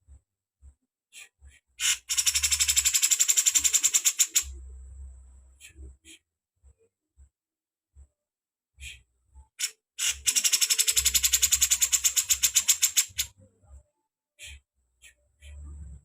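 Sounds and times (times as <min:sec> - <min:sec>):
fast rattling bird trill: 0:01.8 - 0:04.5, 0:09.6 - 0:13.3.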